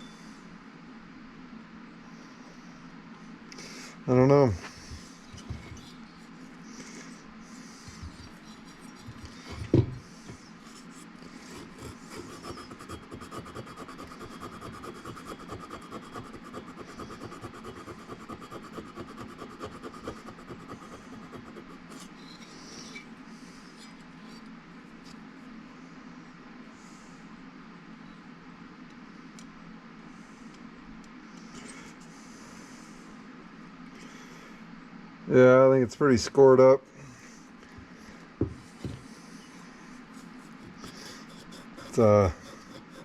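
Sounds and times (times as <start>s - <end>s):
rubbing strokes against metal: 7.9s - 9.6s, 10.6s - 23.0s, 40.2s - 43.0s.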